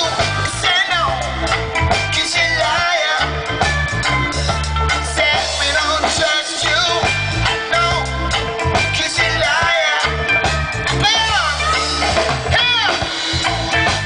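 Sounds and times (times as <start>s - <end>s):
person singing: 0.0s - 3.6s, 8.8s - 10.4s
live reggae band playing: 0.0s - 14.0s.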